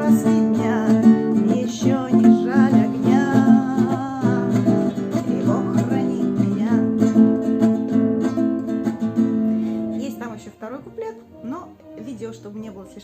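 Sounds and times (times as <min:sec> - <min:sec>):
woman singing: 0:00.0 - 0:08.0
acoustic guitar strumming: 0:00.0 - 0:13.0.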